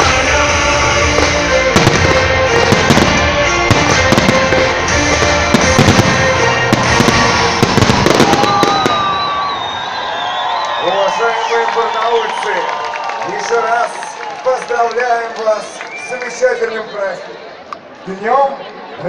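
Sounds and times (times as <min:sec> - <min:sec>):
music from loudspeakers: 0:00.0 - 0:08.9
fireworks bangs and crackles: 0:00.0 - 0:10.0.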